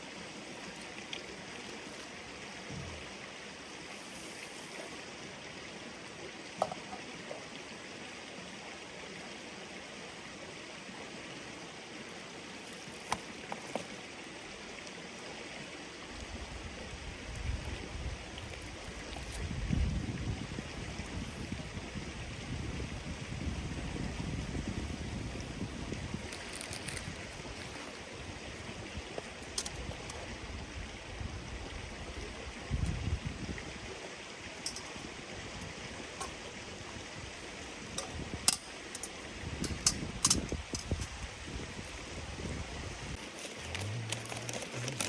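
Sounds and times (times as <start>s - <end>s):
stream running: 0.0s - 45.0s.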